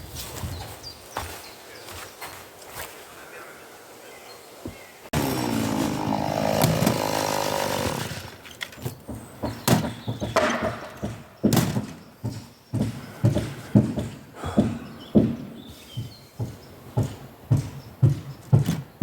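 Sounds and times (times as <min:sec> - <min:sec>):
angle grinder on brick: 0:05.1 - 0:08.8.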